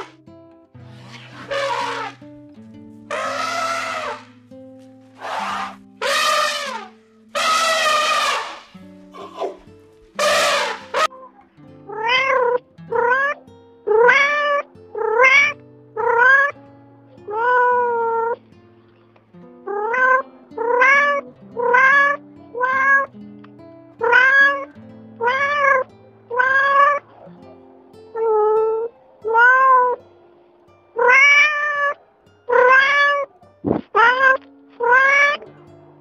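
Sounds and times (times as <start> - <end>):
background music: 0.0 - 36.0
cat meowing: 3.1 - 4.3, 11.9 - 16.5, 17.3 - 18.4, 19.7 - 23.1, 24.0 - 24.6, 25.2 - 27.0, 28.2 - 30.0, 31.0 - 33.3, 34.0 - 35.4.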